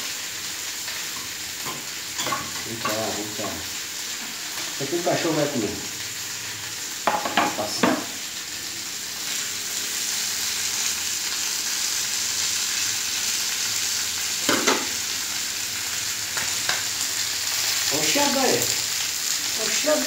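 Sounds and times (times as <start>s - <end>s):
meat sizzling in pans: 0.0s - 20.0s
metal utensil clinking on pan: 1.2s - 3.6s.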